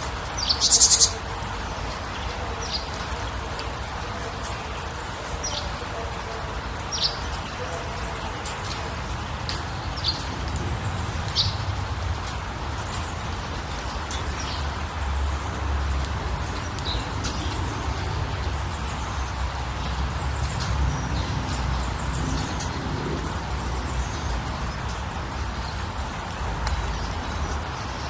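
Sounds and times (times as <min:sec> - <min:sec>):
small birds chirping: 0:00.0 - 0:03.0
steady rushing noise: 0:06.6 - 0:28.0.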